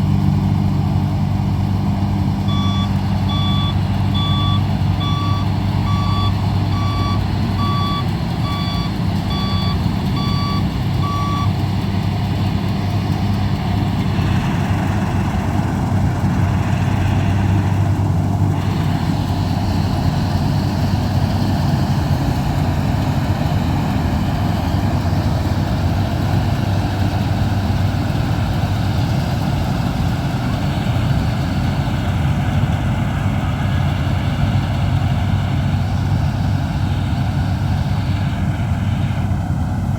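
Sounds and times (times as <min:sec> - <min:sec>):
combine harvester engine running: 0:00.0 - 0:39.9
reversing alarm beeping: 0:02.4 - 0:11.6.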